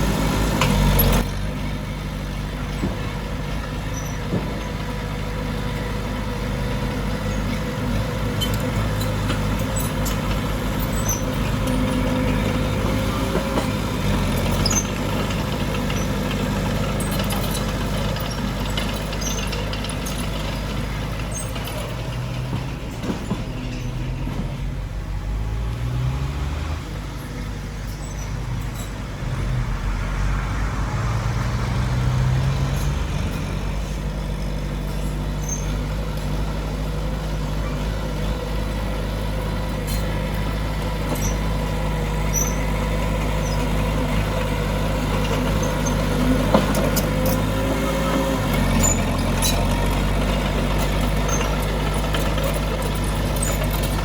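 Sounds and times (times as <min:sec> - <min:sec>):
heavy diesel machinery engine: 0:00.0 - 0:54.0
metallic squeaks and clicks: 0:03.8 - 0:04.9, 0:08.3 - 0:16.3, 0:16.9 - 0:24.6, 0:27.1 - 0:29.5, 0:32.6 - 0:36.3, 0:39.7 - 0:41.6, 0:42.2 - 0:42.8, 0:43.4 - 0:43.8, 0:45.2 - 0:50.0, 0:50.8 - 0:54.0.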